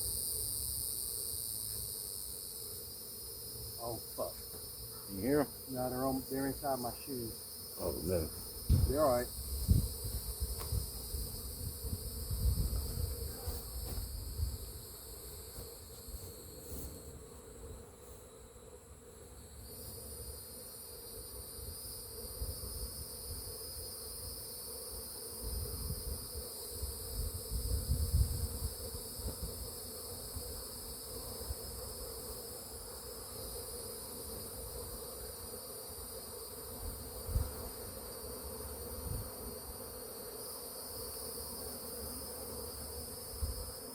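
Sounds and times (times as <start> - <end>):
bees buzzing: 0.0 - 27.8.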